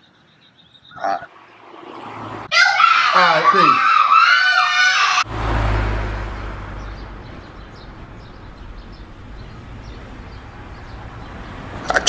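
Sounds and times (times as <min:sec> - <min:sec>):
car passing by: 0:01.4 - 0:02.5, 0:05.0 - 0:12.0
traffic hiss: 0:05.4 - 0:12.0.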